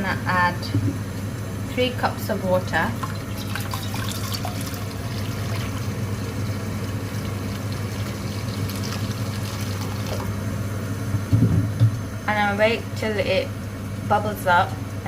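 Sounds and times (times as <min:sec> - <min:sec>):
steady low hum: 0:00.0 - 0:15.0
water pouring into a pot: 0:03.0 - 0:10.4.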